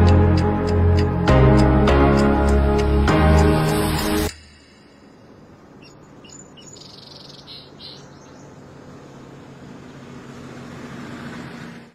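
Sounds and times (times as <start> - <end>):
low hum and hiss: 4.3 - 6.8
high bird chirps: 5.7 - 8.6.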